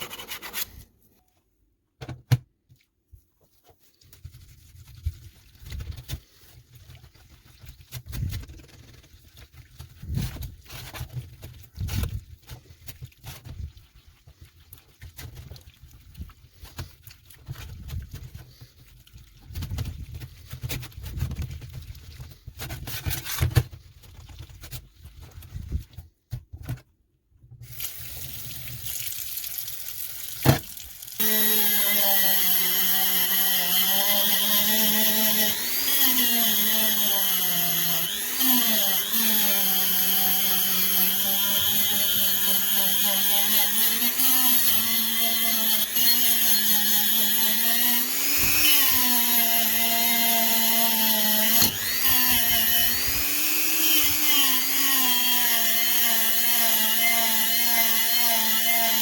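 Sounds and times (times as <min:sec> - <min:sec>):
small electric power tool running: 0:31.2 - 0:59.0.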